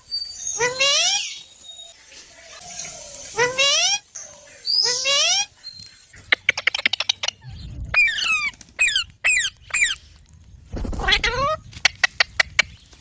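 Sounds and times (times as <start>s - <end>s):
parrot squawking: 4.7s - 5.5s, 6.5s - 10.0s
parrot clicking sounds: 6.3s - 7.4s.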